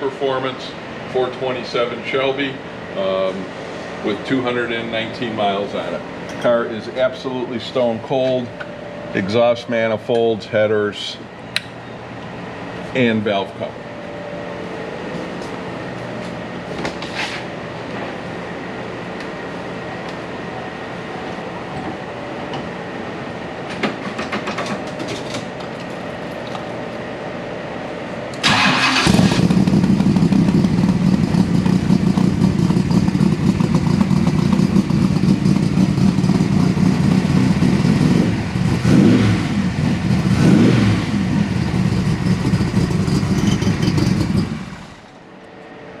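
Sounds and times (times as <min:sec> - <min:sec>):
car engine idling: 0:28.4 - 0:45.1
engine revving blips: 0:37.3 - 0:45.0.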